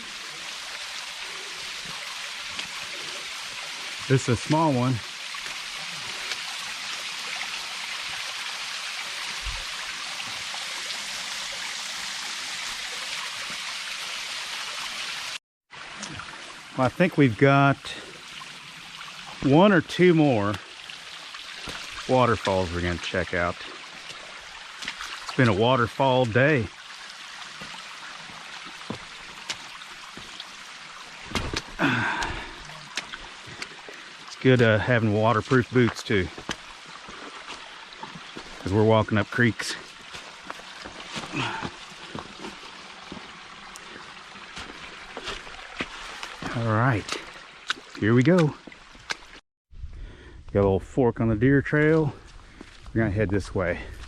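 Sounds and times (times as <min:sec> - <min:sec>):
small waterfall splashing: 0:00.0 - 0:49.4.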